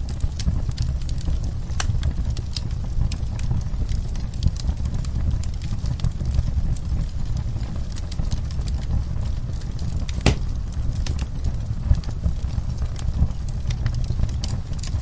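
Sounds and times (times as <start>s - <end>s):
fire crackling in a fireplace: 0.0s - 15.0s
loud pop of fire: 10.1s - 10.8s.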